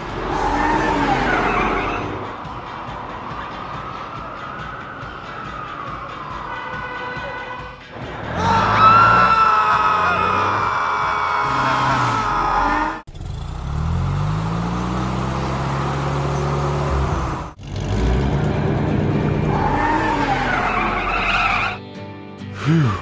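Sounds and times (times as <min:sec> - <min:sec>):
tyres squealing: 0:08.3 - 0:13.0, 0:19.5 - 0:21.8
car engine revving: 0:11.4 - 0:21.6.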